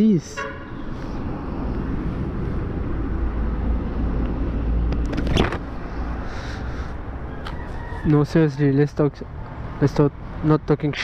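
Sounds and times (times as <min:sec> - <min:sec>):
passing vehicles rumble: 0:00.0 - 0:11.0.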